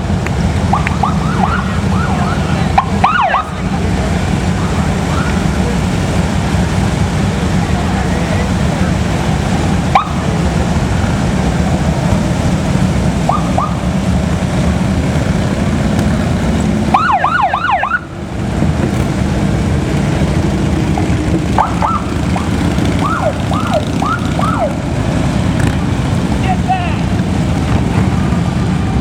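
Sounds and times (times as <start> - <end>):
motorcycle engines rumbling: 0.0 - 29.0
siren whoops: 0.7 - 3.6, 13.3 - 13.9, 16.9 - 18.1, 21.6 - 22.2, 23.0 - 24.8.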